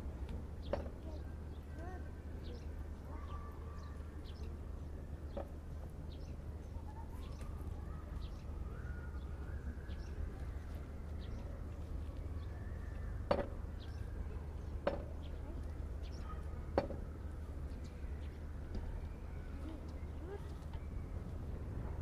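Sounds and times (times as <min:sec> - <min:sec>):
small birds chirping: 0:00.0 - 0:21.6.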